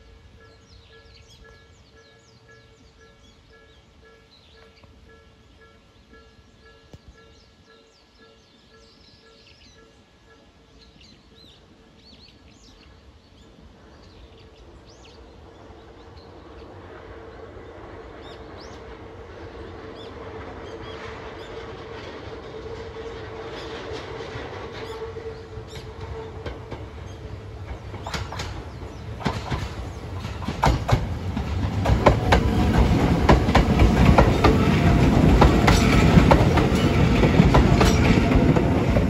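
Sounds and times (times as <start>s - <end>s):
electric train humming: 14.7s - 39.0s
small birds chirping: 24.8s - 34.0s.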